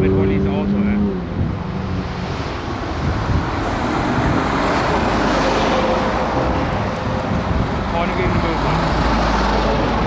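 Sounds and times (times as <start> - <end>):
trucks driving past: 0.0 - 10.0.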